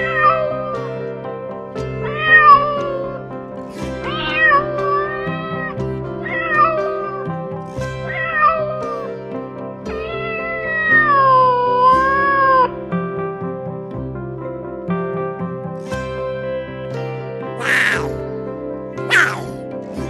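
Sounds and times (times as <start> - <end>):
background music with sustained notes: 0.0 - 20.0
cat meowing: 2.1 - 3.1, 4.1 - 7.1, 8.1 - 9.1, 10.0 - 12.6, 17.6 - 18.2, 19.0 - 19.6.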